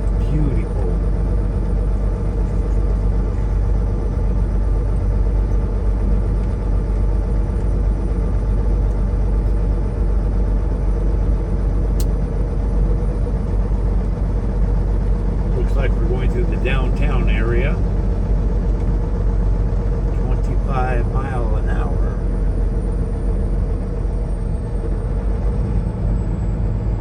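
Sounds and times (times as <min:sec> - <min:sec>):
diesel truck engine rumble: 0:00.0 - 0:27.0.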